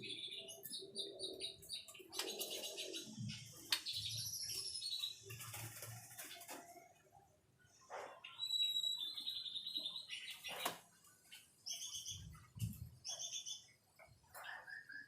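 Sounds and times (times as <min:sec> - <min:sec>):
bird singing whistles and trills: 0:08.2 - 0:10.7.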